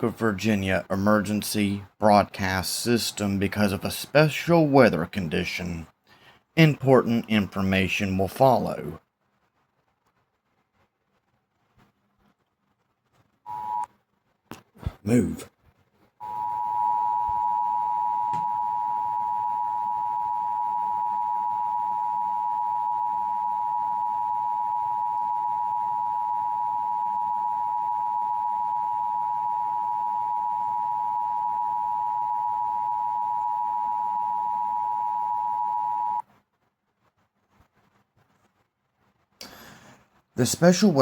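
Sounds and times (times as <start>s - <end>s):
two-tone attention signal: 16.2s - 36.2s.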